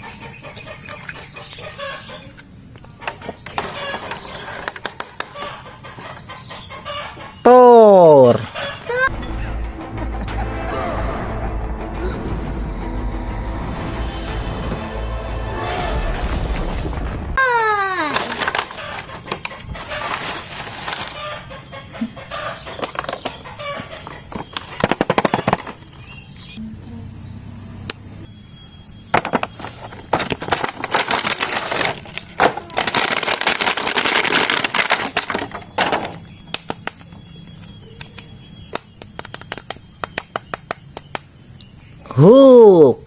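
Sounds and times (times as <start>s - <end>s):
plastic packaging crinkling: 19.8s - 21.3s, 29.4s - 36.9s.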